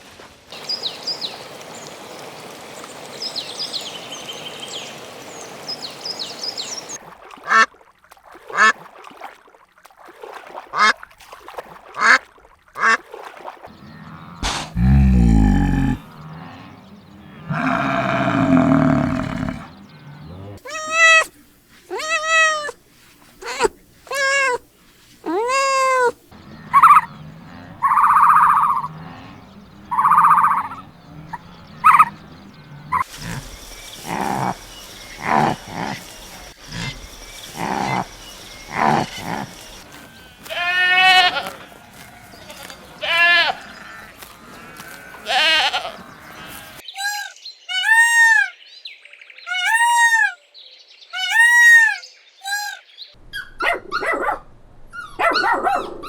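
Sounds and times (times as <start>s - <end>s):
animal calls: 13.8s - 16.7s, 17.3s - 22.8s, 25.3s - 48.6s
goat bleats: 14.4s - 16.0s, 17.5s - 19.7s, 34.0s - 34.6s, 37.6s - 38.1s, 38.7s - 39.6s, 40.4s - 41.7s, 42.6s - 47.2s.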